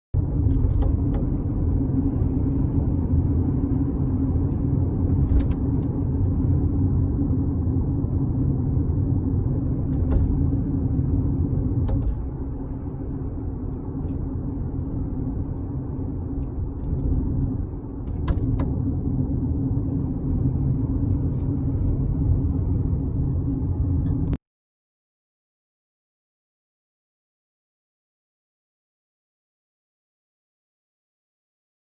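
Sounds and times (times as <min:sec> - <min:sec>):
car cabin road rumble: 0:00.2 - 0:24.4
sunroof clicks and creaks: 0:00.4 - 0:01.8, 0:11.7 - 0:18.8.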